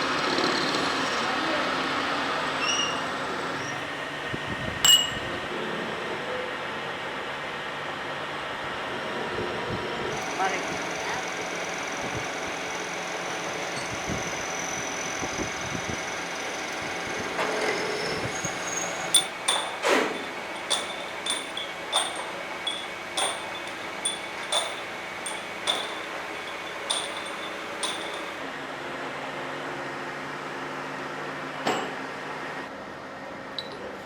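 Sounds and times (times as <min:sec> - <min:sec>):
workshop machinery humming: 0:00.0 - 0:33.3
sharp metallic clinks: 0:04.8 - 0:05.3, 0:18.0 - 0:28.4.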